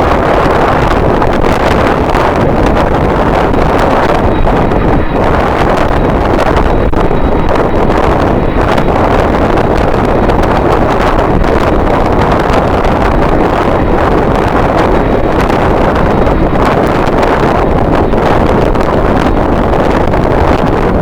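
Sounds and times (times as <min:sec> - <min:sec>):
strong wind buffeting microphone: 0:00.0 - 0:21.0.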